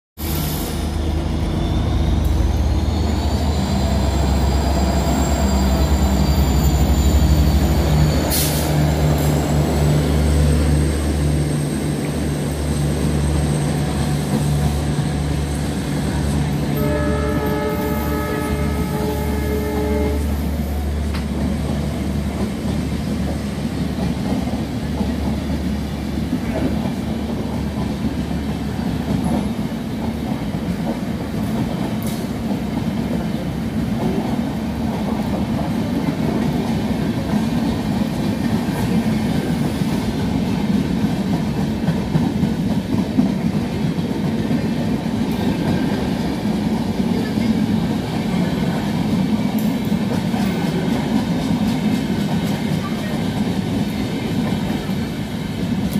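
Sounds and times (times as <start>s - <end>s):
train coaches rumbling past: 0.2s - 55.9s
train horn: 16.6s - 20.9s.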